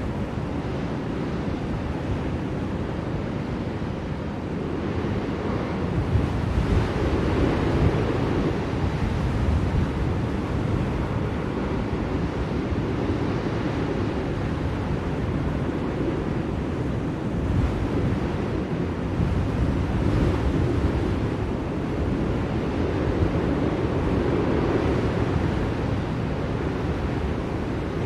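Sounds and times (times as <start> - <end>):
blizzard wind blowing: 0.0 - 28.0.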